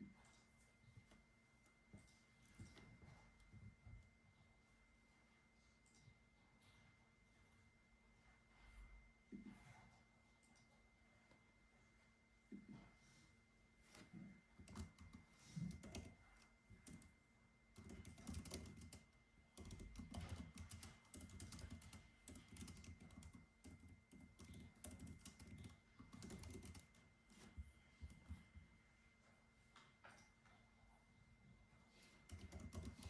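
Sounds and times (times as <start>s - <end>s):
typing on a keyboard: 13.9s - 28.4s, 32.2s - 33.0s.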